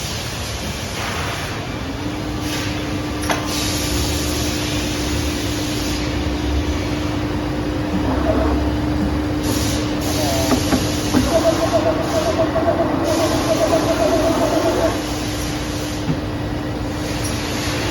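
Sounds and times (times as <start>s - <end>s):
steady hum: 3.9s - 17.9s
cold saw running: 10.1s - 15.1s.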